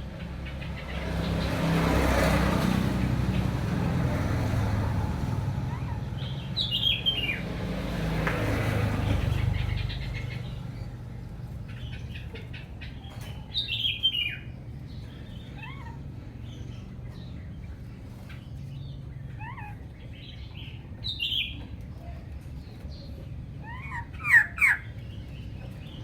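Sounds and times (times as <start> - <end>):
bird chirps and whistled calls: 23.6 - 25.0.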